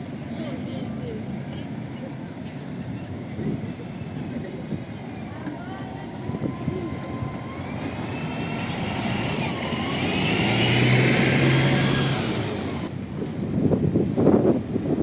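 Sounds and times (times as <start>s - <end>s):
tram rumbling past: 0.0s - 15.0s
wheels squealing: 4.9s - 12.9s
low motor hum: 5.8s - 12.9s.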